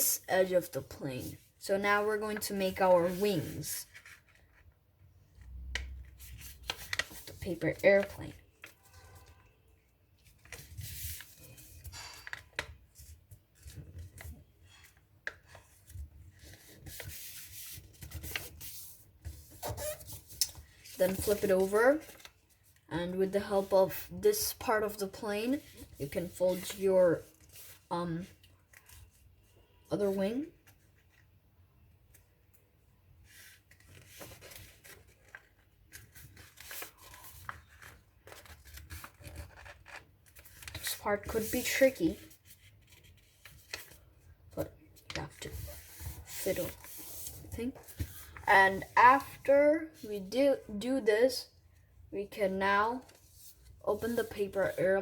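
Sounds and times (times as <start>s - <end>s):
paper rustling and crinkling: 2.2s - 4.8s, 5.4s - 9.5s, 10.2s - 22.9s, 33.2s - 49.4s.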